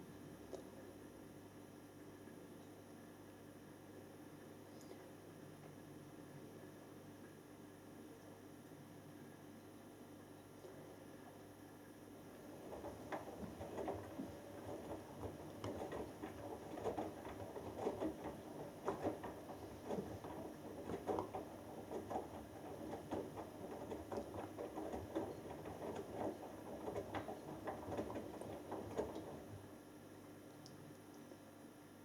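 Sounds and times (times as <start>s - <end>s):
washing machine drum tumbling: 12.4s - 29.8s.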